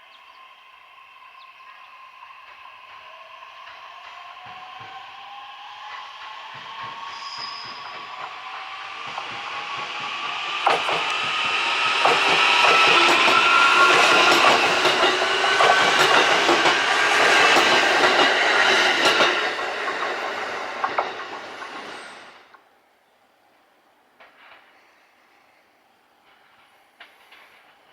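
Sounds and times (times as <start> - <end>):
electric train passing: 0.0 - 22.7
wheels clicking over rail joints: 7.6 - 22.3.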